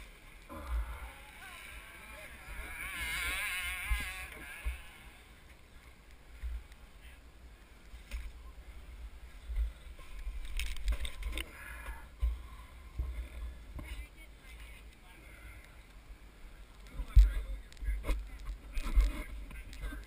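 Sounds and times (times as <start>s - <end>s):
wind rumbling on microphone: 15.3s - 20.0s.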